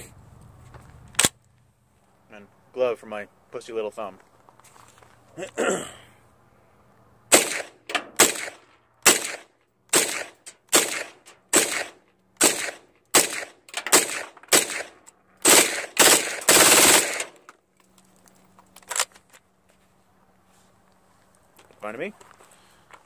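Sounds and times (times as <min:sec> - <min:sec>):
gunshots: 0:07.3 - 0:17.4.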